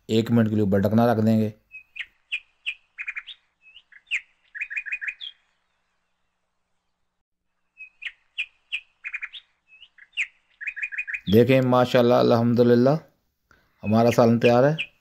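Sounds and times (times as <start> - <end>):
small bird chirping: 1.6 - 12.0, 13.5 - 15.0.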